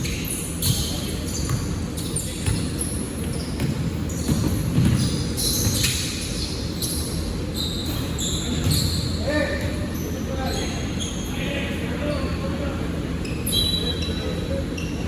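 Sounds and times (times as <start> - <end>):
shoe squeaks on court: 0.0 - 11.3, 13.2 - 15.0
basketball dribbling: 3.6 - 5.9.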